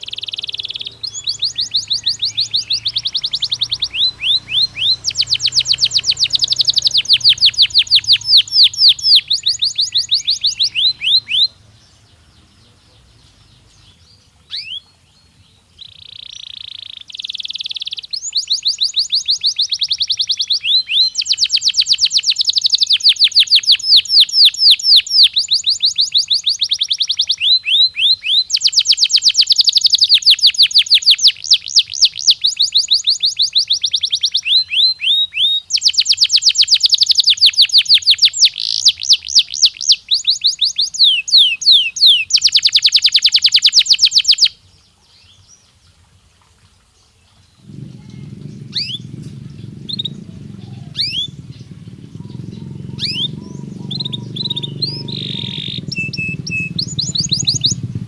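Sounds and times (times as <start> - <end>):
canary singing rapid trills: 0.0 - 44.6, 47.6 - 58.0.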